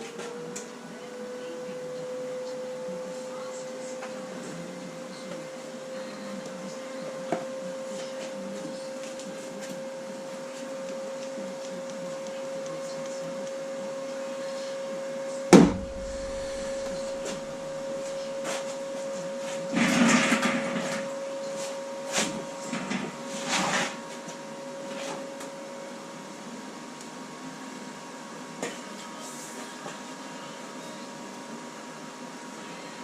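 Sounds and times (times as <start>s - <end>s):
steady machine hum: 0.0s - 23.4s
sharp knock: 15.6s - 18.2s.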